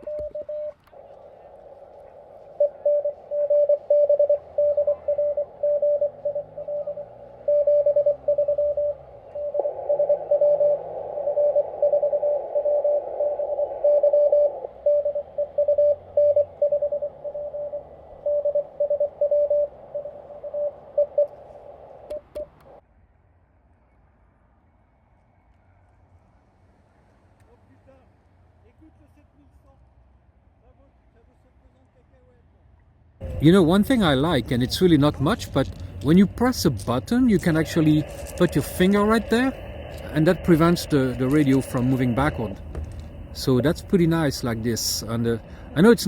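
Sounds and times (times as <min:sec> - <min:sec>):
morse code tone: 0:00.0 - 0:00.8, 0:01.6 - 0:22.6, 0:33.2 - 0:46.0
receiver hiss: 0:00.0 - 0:22.8, 0:33.2 - 0:46.0.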